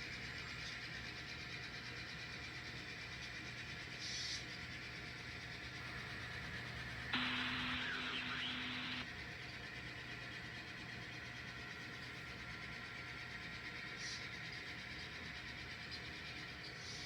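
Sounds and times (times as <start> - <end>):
model locomotive engine sound: 0.0 - 17.0
steady low tone: 7.2 - 9.0.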